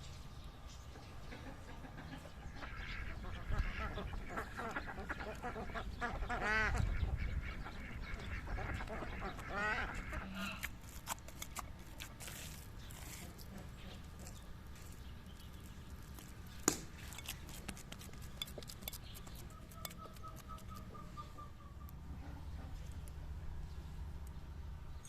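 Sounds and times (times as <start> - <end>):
duck quacking: 1.4 - 10.6
faint animal call: 9.6 - 10.7
minced meat squishing by hand: 10.6 - 20.9.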